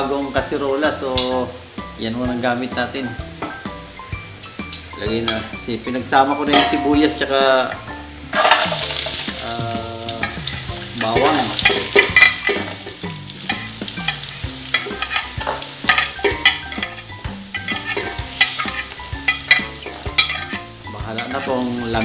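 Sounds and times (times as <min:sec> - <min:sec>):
onion sizzling in hot oil: 0:08.3 - 0:22.0
spatula tapping on glass dish: 0:14.7 - 0:20.6.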